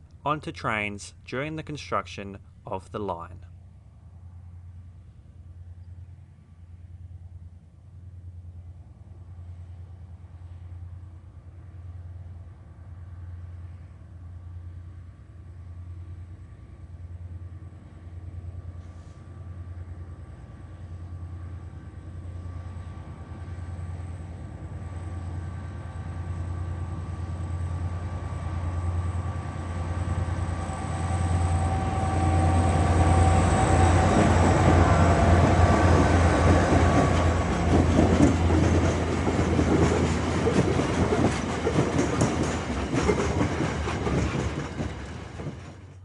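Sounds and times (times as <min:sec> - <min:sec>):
diesel locomotive engine drone: 0:00.0 - 0:46.0
train wheels rumbling and rattling: 0:22.8 - 0:46.0.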